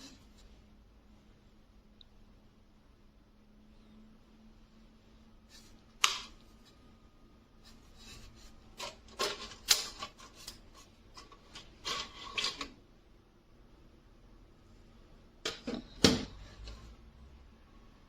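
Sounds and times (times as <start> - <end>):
handling scraping and rubbing: 5.4 - 7.0, 7.6 - 12.8.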